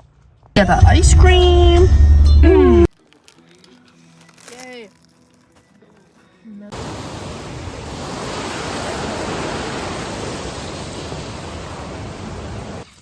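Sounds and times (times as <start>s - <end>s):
rushing river water: 6.8s - 12.8s.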